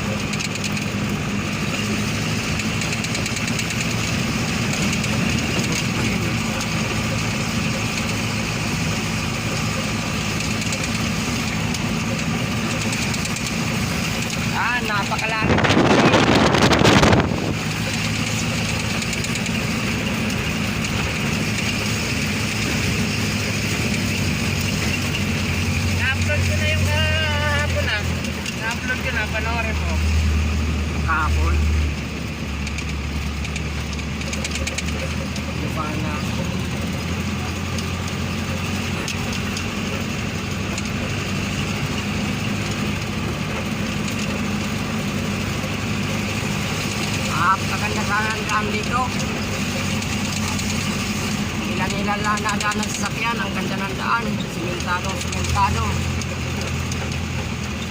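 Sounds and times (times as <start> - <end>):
vehicle engine running: 0.0 - 57.9
loud rushing noise: 15.0 - 17.8.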